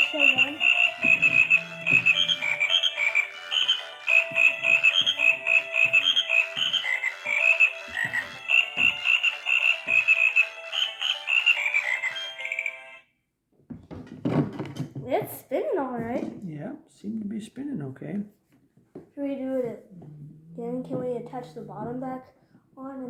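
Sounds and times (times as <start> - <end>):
toy frog electronic croaking: 0.0 - 13.0.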